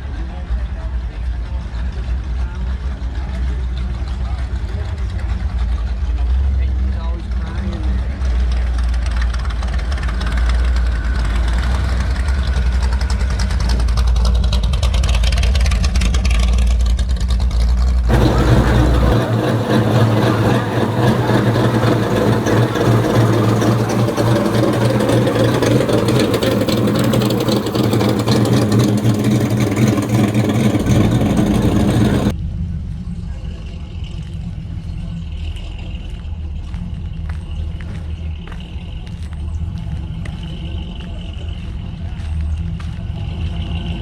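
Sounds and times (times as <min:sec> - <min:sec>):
car engine running: 0:18.1 - 0:32.3.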